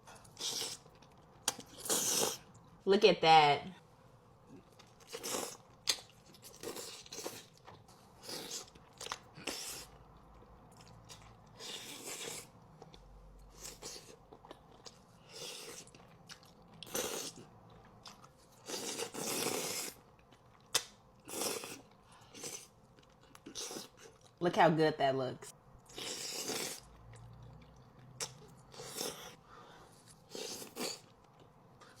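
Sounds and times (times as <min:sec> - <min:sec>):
chewing and biting food: 0:04.6 - 0:24.3, 0:25.8 - 0:29.4.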